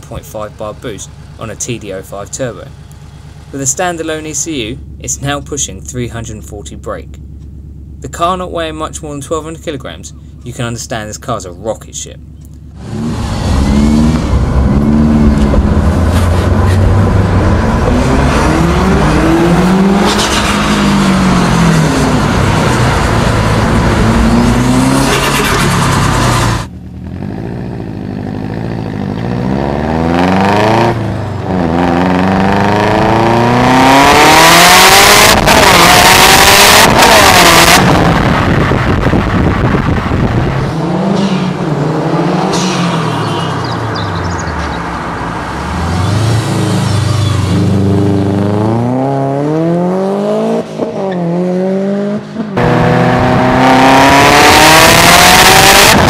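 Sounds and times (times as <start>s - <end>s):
car engine accelerating: 12.3s - 56.0s
loud rushing noise: 35.2s - 48.4s.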